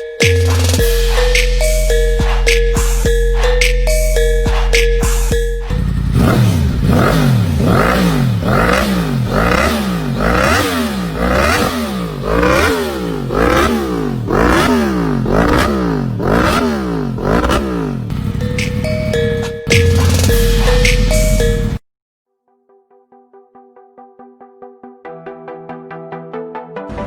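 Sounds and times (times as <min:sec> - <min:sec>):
motorcycle engine revving: 0:05.6 - 0:21.5.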